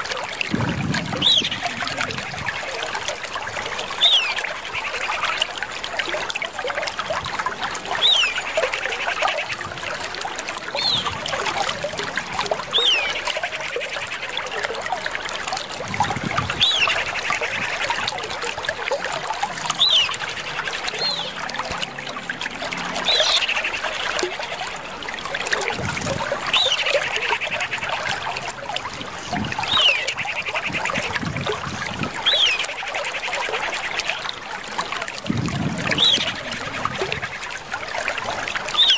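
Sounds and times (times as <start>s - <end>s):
bird whistle and buzzy trill: 1.2s - 3.0s, 3.8s - 5.4s, 16.5s - 18.0s, 32.2s - 34.2s.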